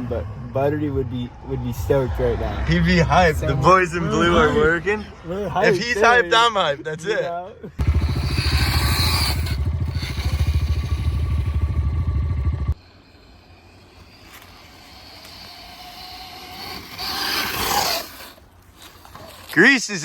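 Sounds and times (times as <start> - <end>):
faint engine: 7.6 - 19.5
dirt bike engine running: 7.8 - 12.8.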